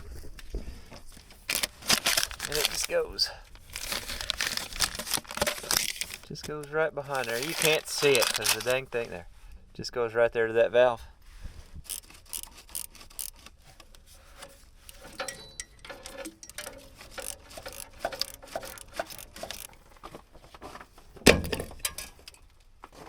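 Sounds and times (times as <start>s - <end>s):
metallic clinks on a hose fitting: 14.9s - 19.7s.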